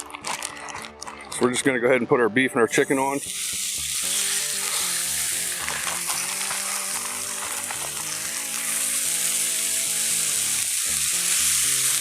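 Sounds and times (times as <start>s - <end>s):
background music: 0.0s - 12.0s
meat sizzling on a griddle: 2.8s - 12.0s.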